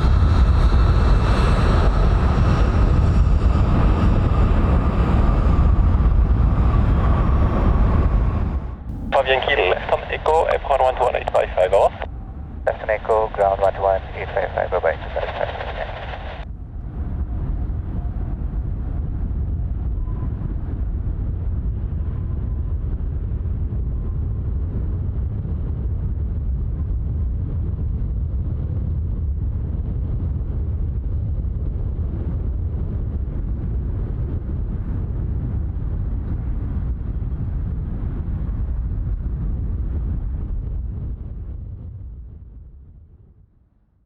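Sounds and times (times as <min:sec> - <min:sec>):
jet engines idling: 0:08.9 - 0:12.1, 0:12.7 - 0:16.4.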